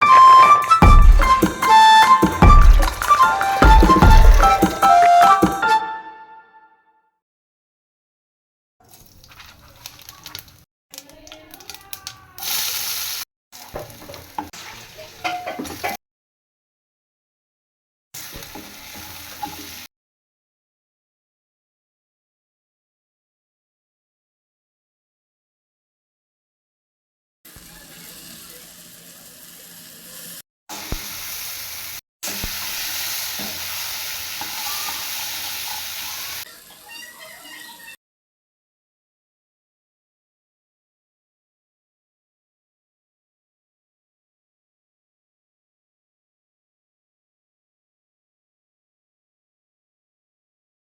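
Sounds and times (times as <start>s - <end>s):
stirring clicks and scrapes: 8.8s - 12.2s
chickpeas sizzling in a pan: 8.8s - 16.0s, 18.2s - 19.9s, 27.5s - 37.6s.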